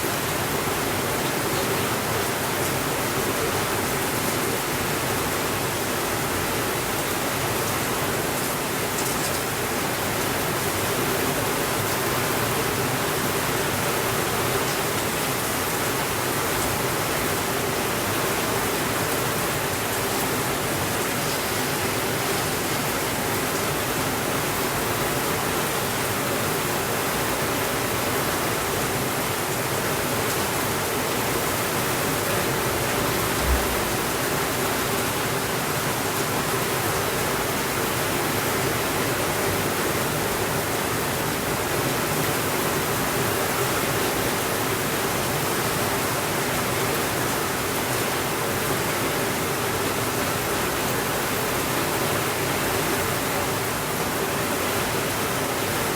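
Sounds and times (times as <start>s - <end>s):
steady rainfall: 0.0s - 55.9s
short low thump: 33.2s - 34.3s.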